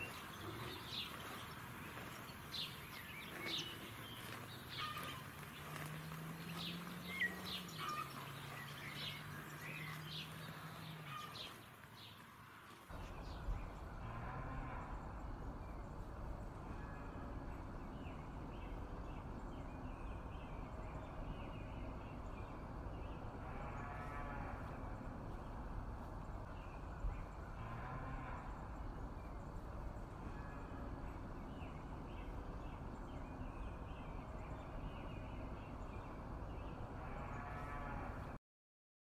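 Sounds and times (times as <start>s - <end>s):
cattle feeding noise: 0.0s - 14.8s
birds chirping: 0.0s - 38.1s
cow mooing: 14.0s - 15.1s, 23.4s - 24.8s, 37.0s - 38.4s.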